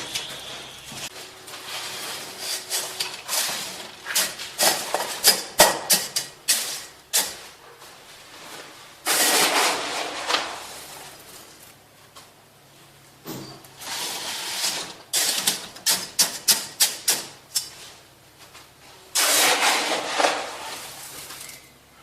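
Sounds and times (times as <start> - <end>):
tools scraping mortar and tile: 1.8 - 7.4, 9.0 - 10.7, 13.8 - 17.7, 19.2 - 21.7.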